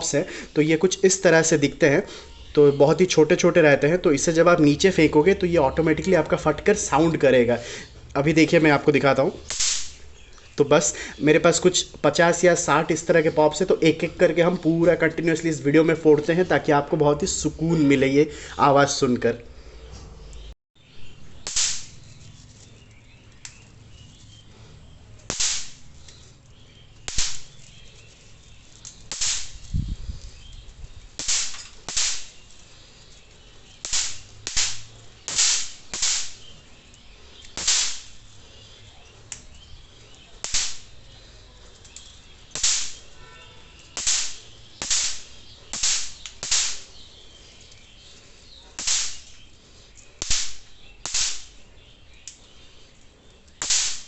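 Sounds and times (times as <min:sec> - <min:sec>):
bang snaps cracking: 0:09.5 - 0:10.0, 0:21.4 - 0:22.0, 0:25.2 - 0:26.2, 0:27.0 - 0:27.6, 0:28.8 - 0:29.7, 0:31.2 - 0:32.5, 0:33.8 - 0:36.5, 0:37.4 - 0:38.2, 0:40.4 - 0:41.0, 0:41.8 - 0:43.2, 0:43.9 - 0:47.0, 0:48.8 - 0:49.5, 0:50.2 - 0:51.6, 0:53.6 - 0:54.0.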